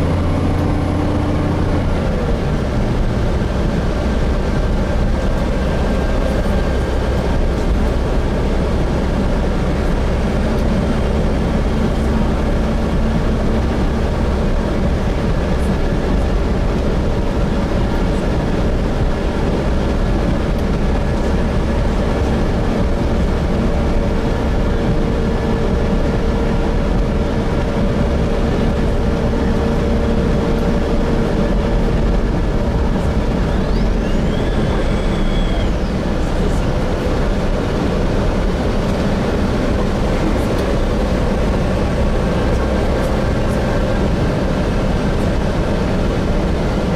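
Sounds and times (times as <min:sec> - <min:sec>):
bus engine and drivetrain drone: 0:00.0 - 0:46.9
low road rumble: 0:00.0 - 0:46.9.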